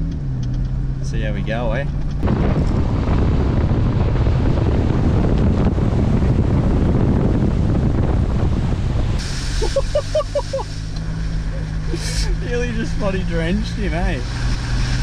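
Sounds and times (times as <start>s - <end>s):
water rushing and splashing: 8.5s - 15.0s.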